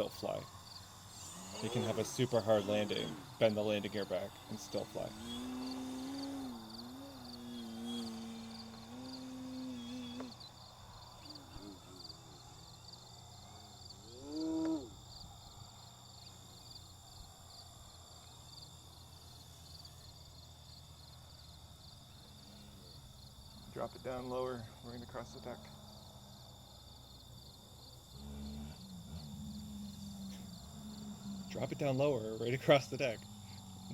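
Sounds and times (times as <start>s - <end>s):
crickets chirping: 0.0s - 33.9s
model plane motor and propeller drone: 0.0s - 33.9s
short rising and falling whine: 1.1s - 10.4s, 28.1s - 33.9s.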